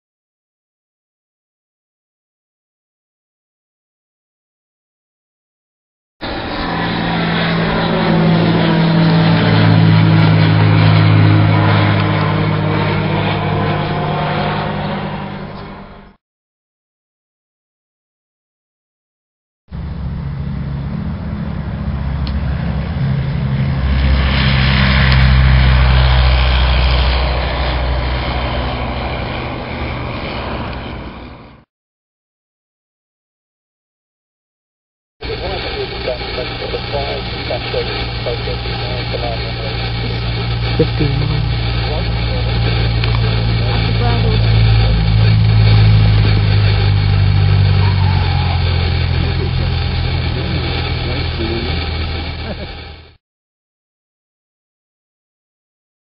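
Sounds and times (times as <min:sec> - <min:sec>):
propeller aircraft engine drone: 0:06.2 - 0:16.2, 0:19.7 - 0:31.7, 0:35.2 - 0:53.2.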